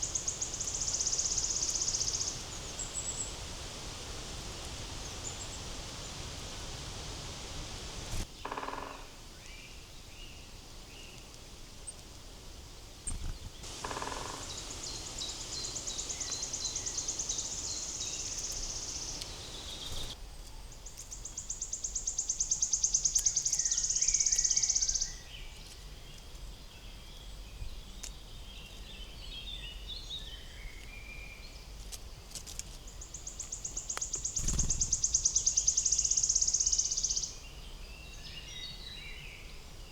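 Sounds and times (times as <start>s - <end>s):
bird chirps: 13.1s - 20.2s, 32.9s - 39.5s.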